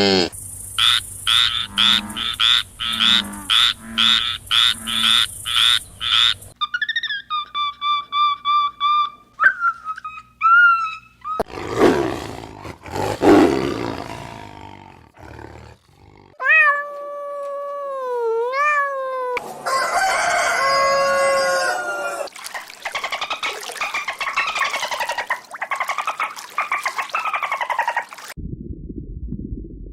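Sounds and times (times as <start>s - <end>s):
animal rough roar: 11.4s - 16.4s.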